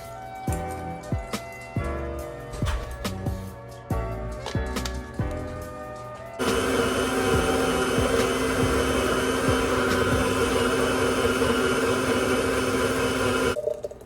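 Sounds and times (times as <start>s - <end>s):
blender running: 6.4s - 13.6s.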